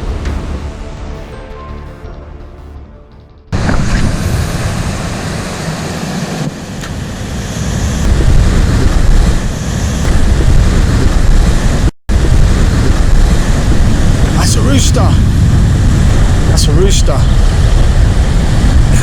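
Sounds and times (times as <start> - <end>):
wind buffeting microphone: 3.6 - 19.0.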